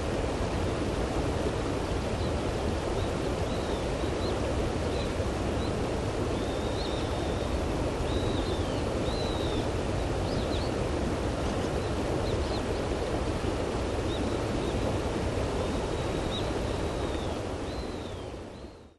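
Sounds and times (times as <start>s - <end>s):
river flowing over stones: 0.0s - 18.5s.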